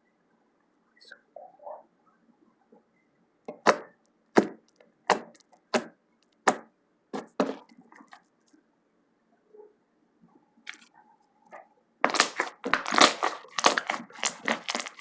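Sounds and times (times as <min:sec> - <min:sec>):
slime slapping: 0:03.5 - 0:07.6, 0:12.0 - 0:15.0.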